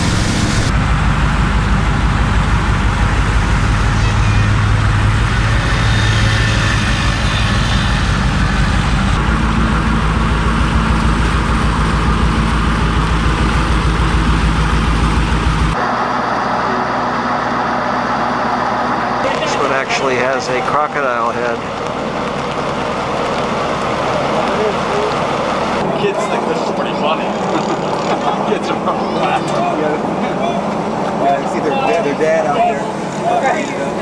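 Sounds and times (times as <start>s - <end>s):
motor droning: 0.0s - 25.9s.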